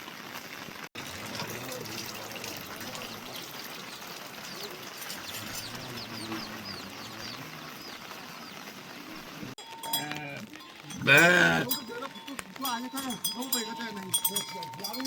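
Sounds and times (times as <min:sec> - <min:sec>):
rain hissing: 0:00.0 - 0:12.9
small bird chirping: 0:03.0 - 0:09.5.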